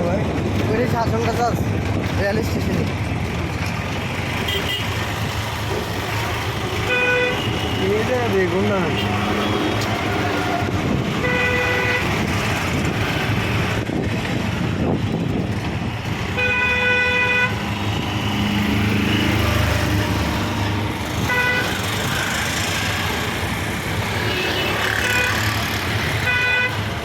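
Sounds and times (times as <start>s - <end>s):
traffic noise: 0.0s - 27.0s
vehicle horn tooting: 4.5s - 4.9s, 6.8s - 8.1s, 11.2s - 12.2s, 16.4s - 17.6s, 21.2s - 22.4s, 24.2s - 25.5s, 26.2s - 26.8s.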